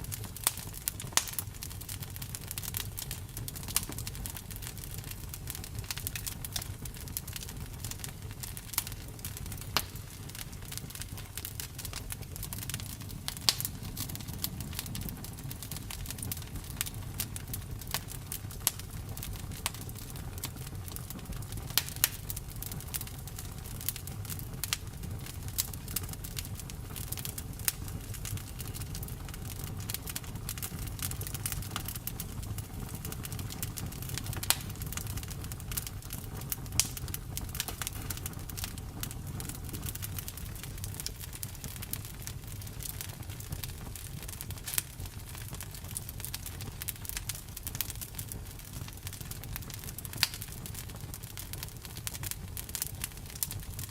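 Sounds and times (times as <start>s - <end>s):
wood fire crackling: 0.0s - 53.9s
sharp pops and snaps: 12.5s - 14.8s, 36.7s - 38.8s.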